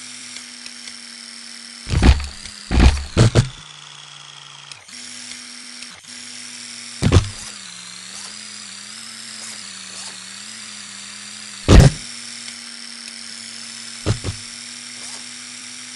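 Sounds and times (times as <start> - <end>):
electric motor whining: 0.0 - 15.9
short loud bursts: 1.9 - 3.6, 11.7 - 12.0.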